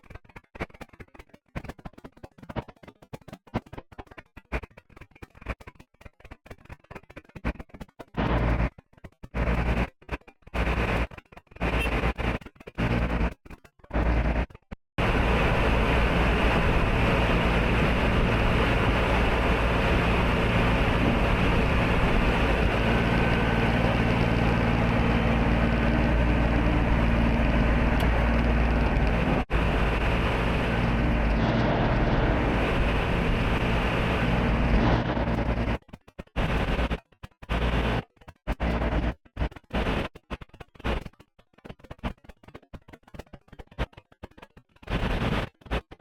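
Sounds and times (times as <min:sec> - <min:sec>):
vehicle engine droning: 0:08.2 - 0:08.7, 0:10.6 - 0:35.8, 0:37.5 - 0:39.2.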